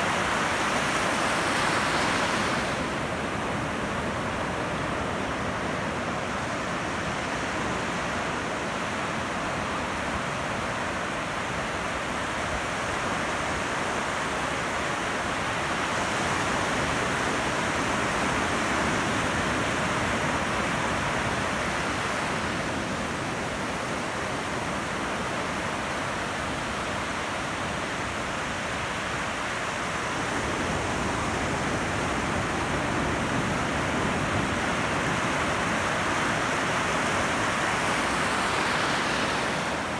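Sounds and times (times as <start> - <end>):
ocean waves breaking: 0.0 - 5.4, 30.1 - 39.9.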